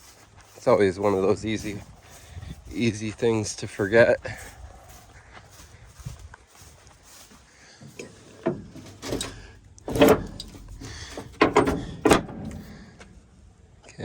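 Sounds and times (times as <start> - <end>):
metal door clanking shut: 7.8 - 13.0.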